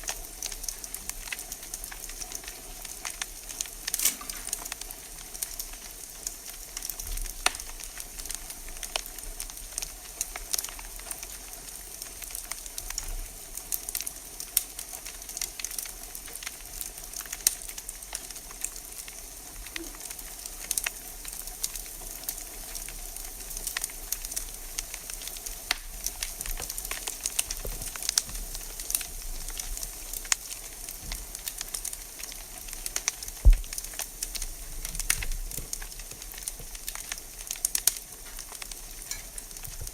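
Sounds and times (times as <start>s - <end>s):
wood fire crackling: 0.0s - 39.9s
dull knock: 33.4s - 33.7s.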